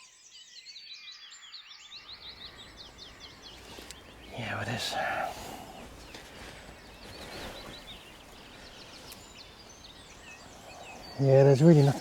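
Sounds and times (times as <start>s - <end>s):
faint bird chirps: 0.0s - 12.0s
soft rustling: 2.4s - 10.8s.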